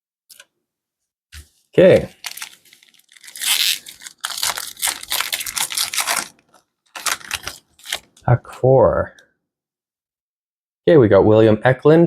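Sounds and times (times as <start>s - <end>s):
wrapper tearing and crinkling: 1.9s - 8.2s.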